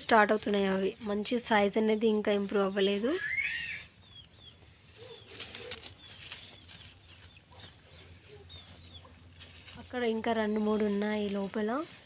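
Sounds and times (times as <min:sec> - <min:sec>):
faint bird chirps: 0:02.6 - 0:09.8.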